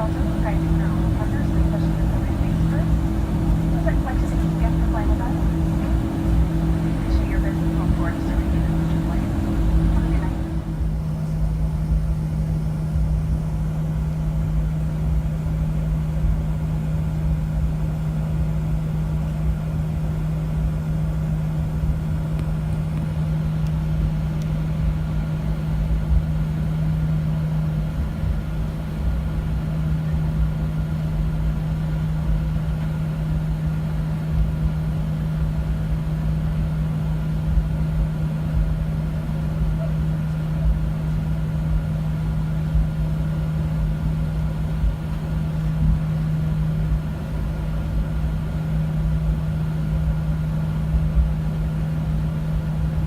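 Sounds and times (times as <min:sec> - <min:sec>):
held tone: 0:00.0 - 0:11.0
low rumble: 0:00.0 - 0:17.8
airliner cabin hum: 0:00.0 - 0:53.0.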